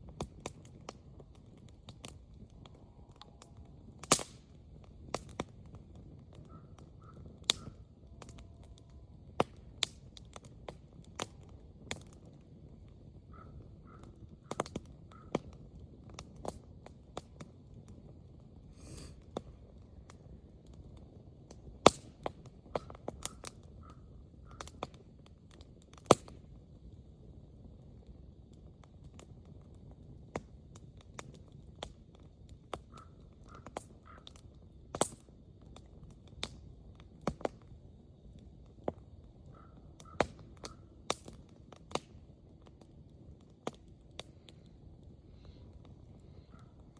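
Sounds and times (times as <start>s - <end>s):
sharp pops from fire: 0.0s - 46.9s
wood fire crackling: 0.0s - 46.9s
faint bird calls: 6.4s - 7.9s, 13.3s - 15.4s, 22.8s - 24.8s, 32.9s - 34.4s, 39.4s - 40.9s, 45.4s - 46.9s.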